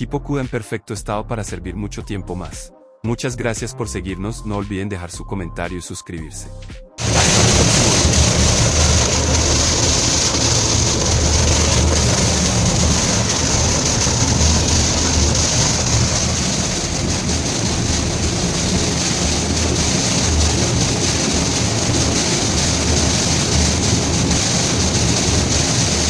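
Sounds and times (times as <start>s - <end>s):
pump motor hum: 7.0s - 26.0s
water rushing and splashing: 7.0s - 26.0s.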